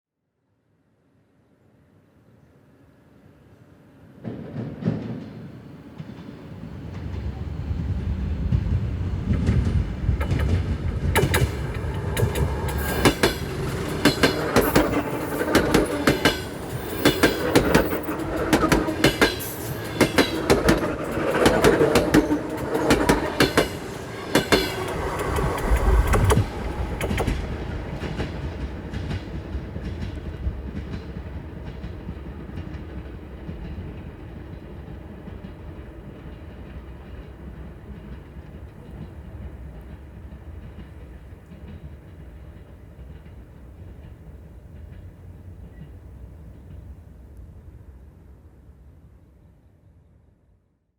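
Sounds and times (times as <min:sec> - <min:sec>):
wheels clacking on rail joints: 0:04.6 - 0:46.2
electric train gearbox whine: 0:09.3 - 0:30.2.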